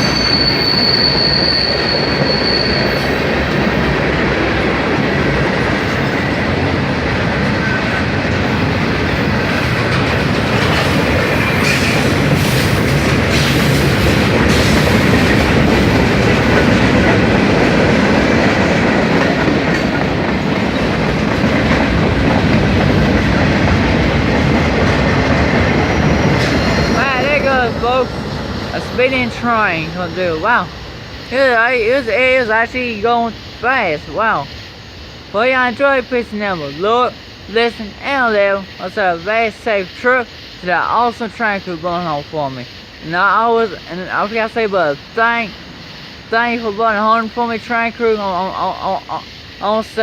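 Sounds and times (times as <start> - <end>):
high wheel squeal: 0.0 - 3.9, 25.7 - 28.2
train wheels clacking on rails: 0.0 - 32.8.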